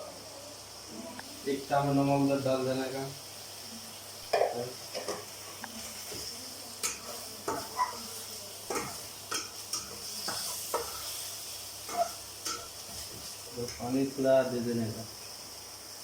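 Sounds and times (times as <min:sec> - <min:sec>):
meat sizzling in a pan: 0:00.0 - 0:16.0
utensil scraping and clinking pan: 0:11.9 - 0:13.9.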